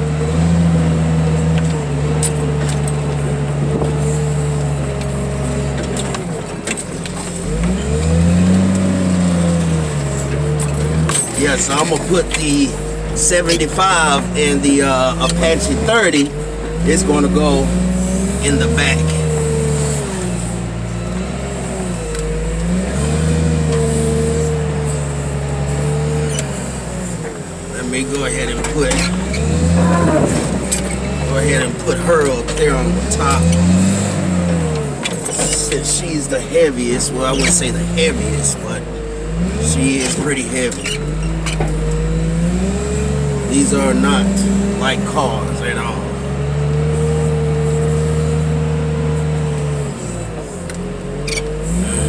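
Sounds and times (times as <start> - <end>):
heavy machine engine humming: 0.0 - 52.0
metallic rattles and clanks: 0.0 - 52.0
whining tone: 0.0 - 52.0.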